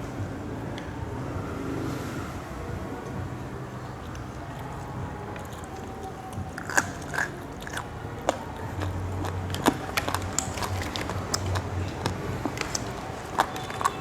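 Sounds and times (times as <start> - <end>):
chewing: 3.7 - 14.0.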